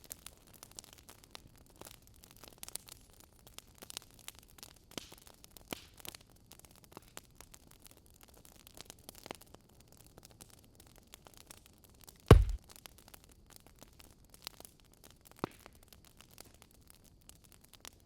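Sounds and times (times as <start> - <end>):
wood fire crackling: 12.3 - 12.6.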